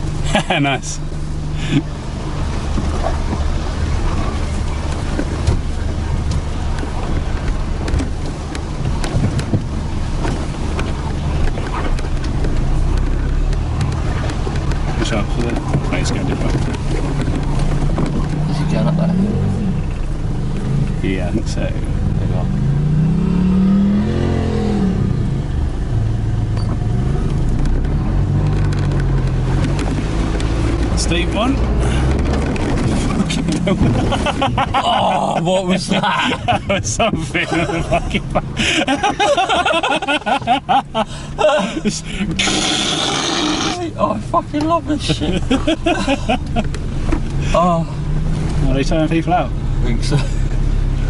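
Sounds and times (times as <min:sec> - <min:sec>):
truck engine drone under load: 0:00.0 - 0:51.0
knocks and rattles: 0:02.7 - 0:18.7, 0:26.6 - 0:34.8.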